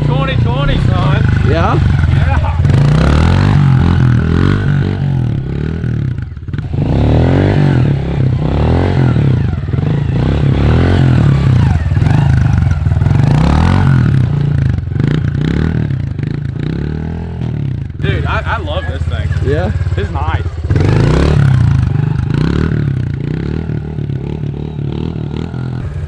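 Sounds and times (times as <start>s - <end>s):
motorbike engine revving: 0.0s - 26.0s.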